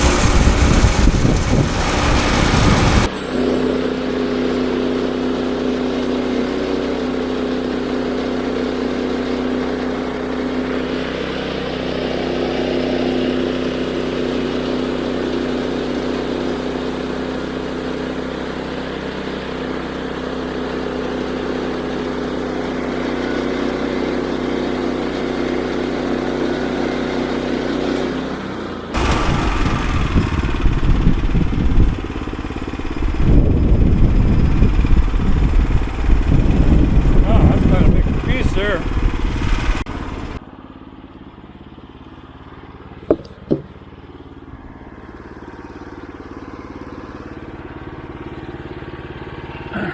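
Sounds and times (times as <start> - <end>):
loud irregular low rumbling: 0.0 - 3.1, 28.9 - 40.4
sawmill gas engine running: 0.0 - 49.9.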